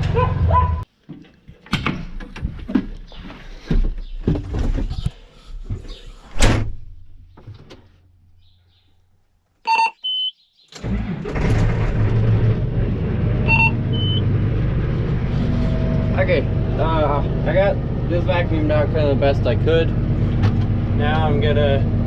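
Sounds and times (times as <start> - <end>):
knocks and clatter: 1.1 - 5.2, 20.3 - 20.8
diesel tractor engine running: 10.8 - 22.0
short electronic beep: 13.5 - 14.3.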